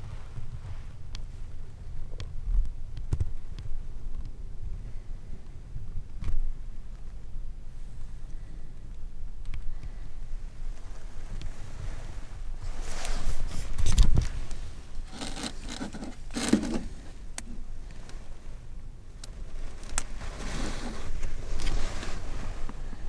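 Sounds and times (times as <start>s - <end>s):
rustling and scraping of handling: 10.3s - 23.0s.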